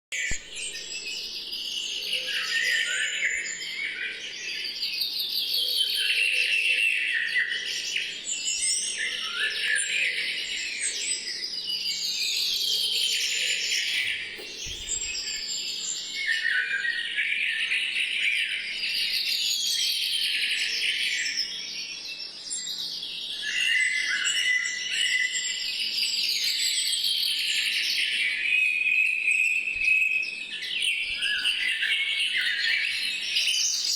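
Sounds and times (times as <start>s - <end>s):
birds chirping: 13.1s - 16.2s, 30.3s - 33.9s.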